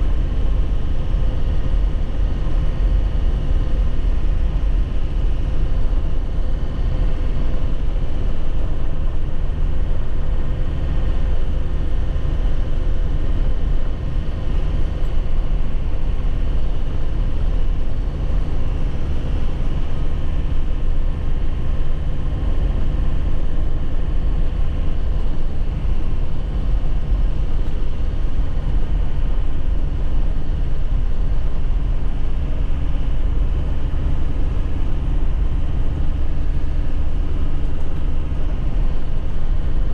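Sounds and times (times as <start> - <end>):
low road noise: 0.0 - 39.9
truck engine running: 0.0 - 39.9.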